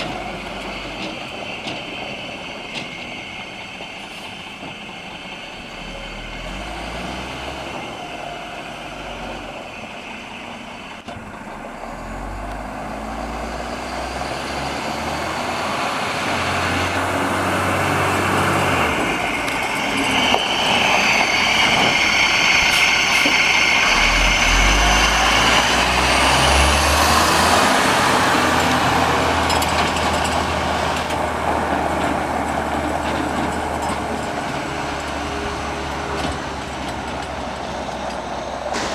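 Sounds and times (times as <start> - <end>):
diesel truck engine running: 5.2 - 38.9.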